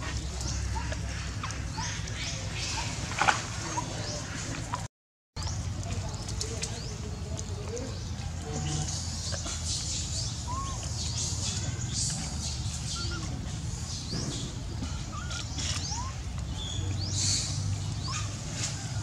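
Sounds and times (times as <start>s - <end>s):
lower bird calls: 7.8s - 19.0s.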